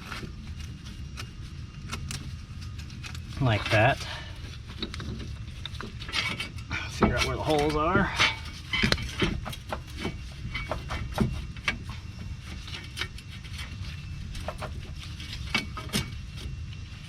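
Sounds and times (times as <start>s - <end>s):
steady low hum: 0.0s - 17.0s
metal parts clicking and knocking: 4.8s - 13.7s.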